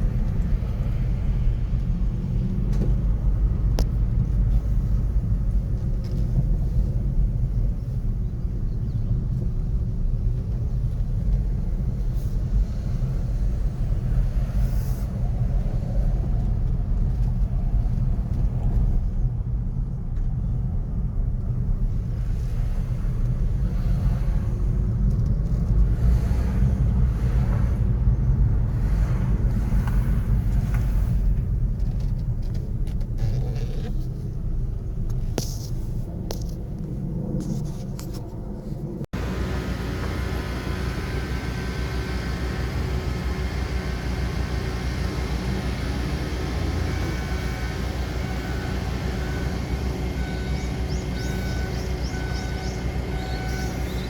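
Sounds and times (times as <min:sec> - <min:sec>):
low rumble of traffic: 0:00.0 - 0:54.0
cars passing by: 0:21.6 - 0:38.2, 0:39.2 - 0:54.0.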